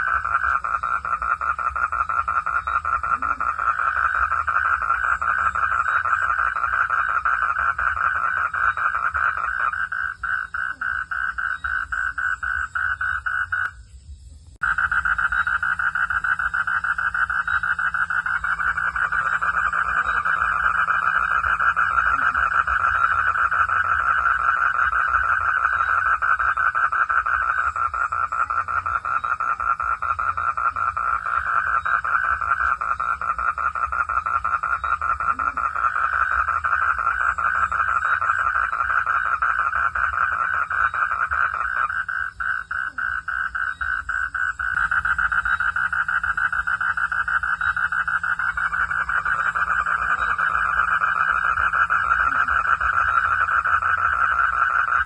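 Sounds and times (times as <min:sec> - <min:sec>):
frogs calling in rapid pulses: 0:00.0 - 0:55.0.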